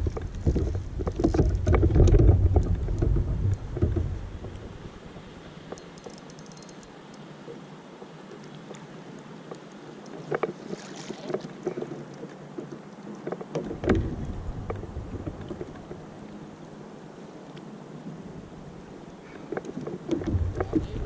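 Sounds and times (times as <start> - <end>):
knocks and clatter on a boat: 0.0 - 6.8, 10.2 - 16.1, 19.2 - 21.0.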